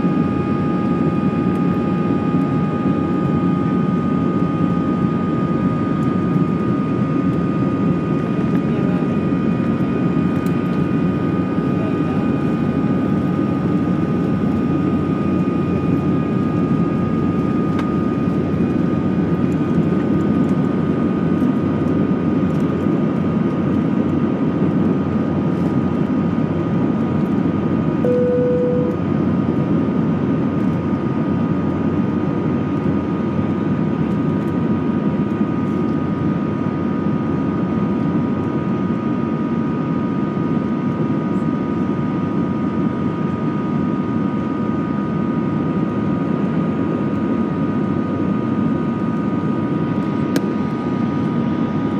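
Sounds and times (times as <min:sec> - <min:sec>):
short tone: 0:28.0 - 0:29.0.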